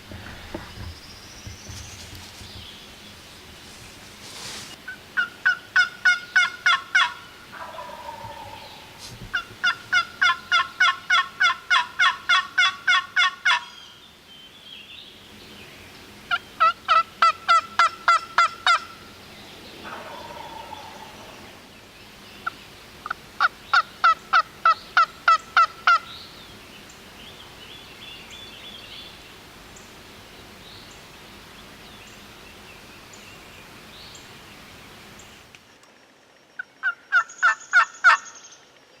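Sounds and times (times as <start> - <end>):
low falling gobble call: 4.9 - 13.8, 16.3 - 19.0, 19.8 - 21.7, 22.4 - 26.1, 36.6 - 38.4
turkey yelps: 5.2 - 13.7, 16.6 - 18.8, 19.8 - 21.5.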